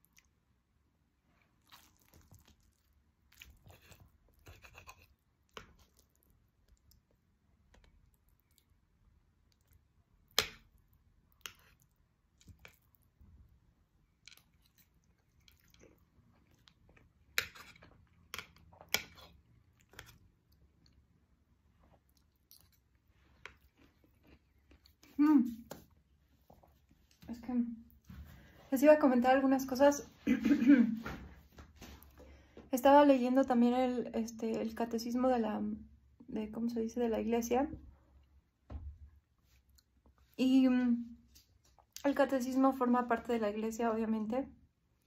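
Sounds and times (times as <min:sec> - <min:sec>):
person chewing: 0:01.4 - 0:13.2, 0:14.0 - 0:25.9.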